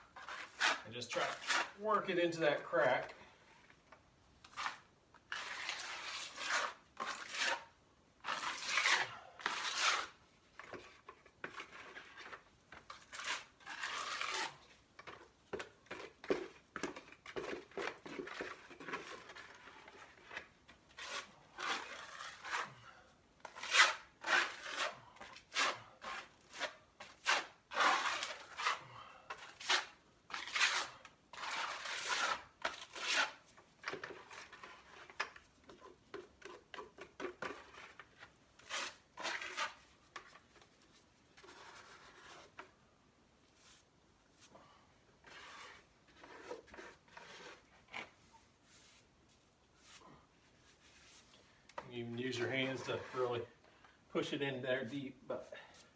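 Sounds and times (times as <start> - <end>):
cement scraping on concrete: 0.2 - 3.0, 11.4 - 22.8, 45.2 - 48.2, 52.2 - 53.5.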